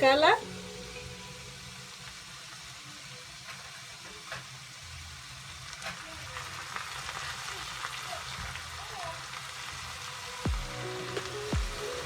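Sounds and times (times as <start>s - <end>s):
rice frying in oil: 0.0s - 12.0s.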